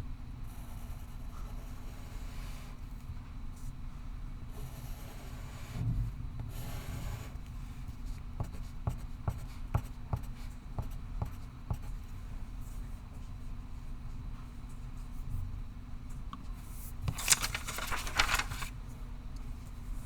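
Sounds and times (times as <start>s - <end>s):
low room hum: 16.3s - 20.0s.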